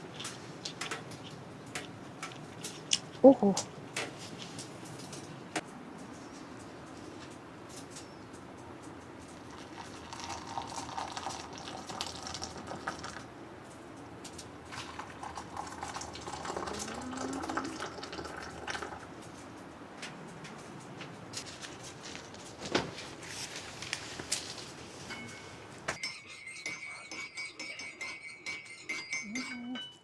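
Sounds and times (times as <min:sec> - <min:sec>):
tea pouring into vessel: 0:09.4 - 0:13.2, 0:14.7 - 0:19.1.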